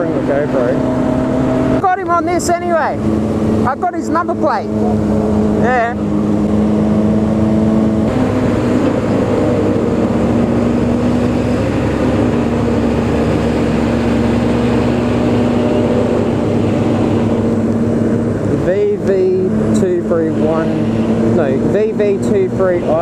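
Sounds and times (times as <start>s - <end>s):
motorcycle engine cruising: 0.0s - 23.0s
road noise: 0.0s - 23.0s
wind noise: 0.8s - 21.8s.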